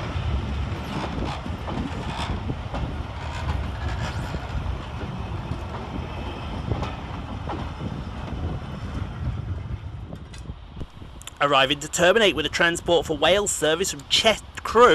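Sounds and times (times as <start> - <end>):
wheels clicking on rails: 0.0 - 10.6
train rumbling: 0.0 - 14.9.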